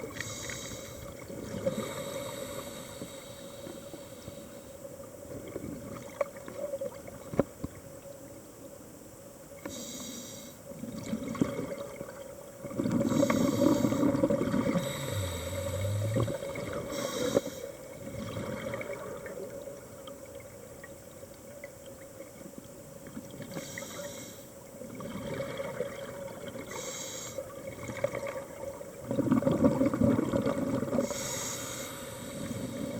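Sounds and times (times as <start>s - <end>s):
faint hum: 0.0s - 32.9s
exhaled bubbles rumbling: 5.3s - 7.5s, 10.8s - 17.1s, 17.9s - 20.9s, 24.8s - 26.7s, 27.4s - 31.2s
hissing regulator inhalations: 13.1s - 17.7s, 31.0s - 32.9s.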